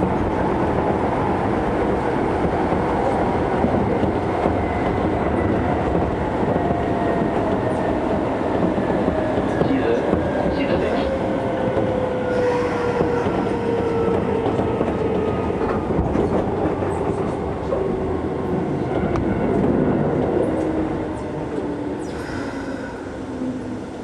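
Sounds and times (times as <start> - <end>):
train wheels clattering on rails: 1.9 - 18.0.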